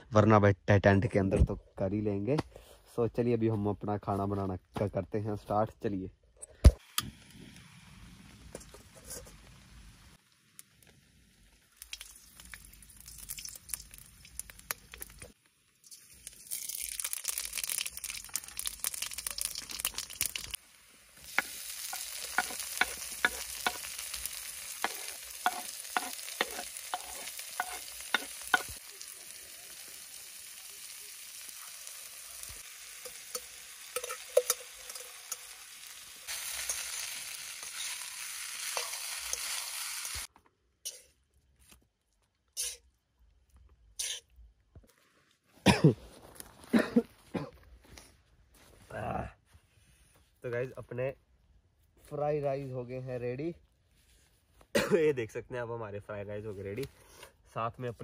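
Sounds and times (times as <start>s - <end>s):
food sizzling in a wok: 6.8s - 40.3s, 42.6s - 42.9s, 44.0s - 44.2s
spatula scraping and tapping pan: 21.3s - 24.1s, 24.8s - 28.8s, 33.0s - 35.4s.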